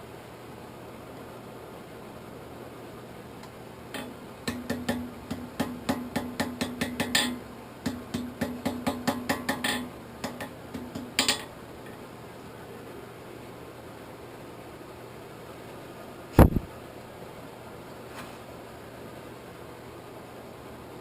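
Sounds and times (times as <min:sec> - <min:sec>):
hammer striking steel on anvil: 0:04.0 - 0:11.5.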